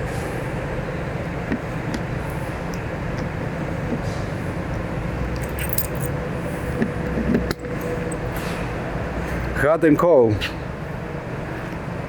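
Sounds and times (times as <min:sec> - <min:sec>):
steady background hum: 0:00.0 - 0:12.0
metallic clinking and rattling: 0:05.2 - 0:06.2.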